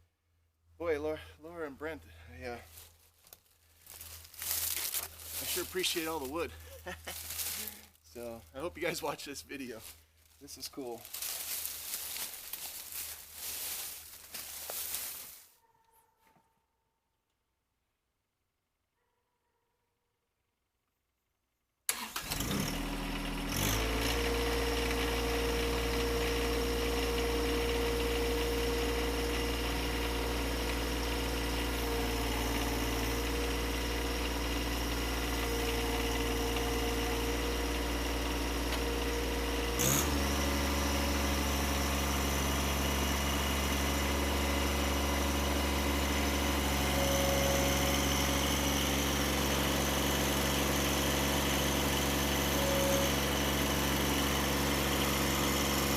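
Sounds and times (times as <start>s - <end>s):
engine idling: 21.9s - 55.9s.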